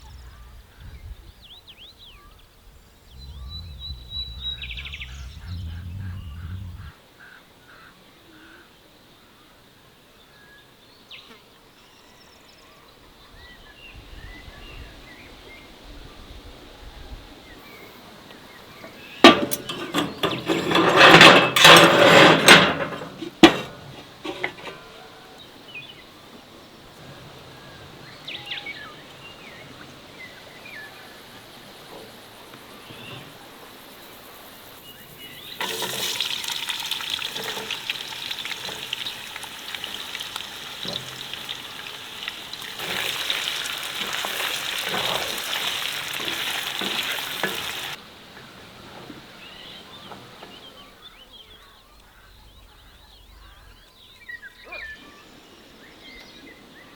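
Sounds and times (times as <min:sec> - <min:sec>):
clattering and rustling: 0:18.8 - 0:25.1, 0:35.6 - 0:48.0
food sizzling in a frying pan: 0:35.6 - 0:48.0.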